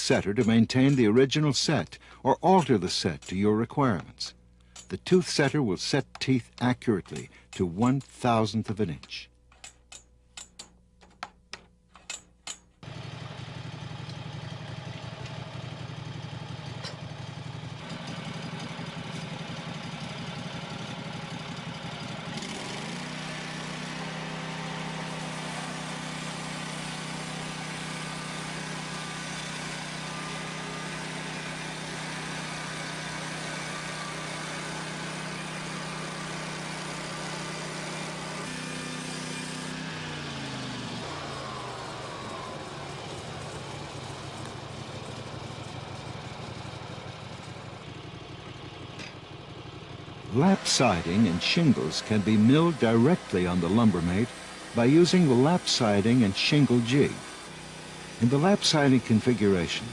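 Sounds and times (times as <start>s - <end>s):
small petrol engine running: 12.8s - 59.9s.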